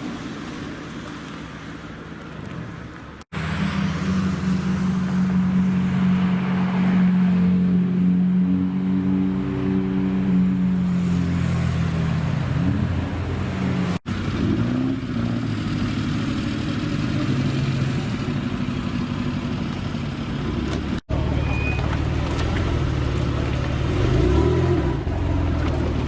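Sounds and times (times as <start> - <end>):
car engine idling: 14.1 - 24.2
car engine revving: 20.2 - 26.0.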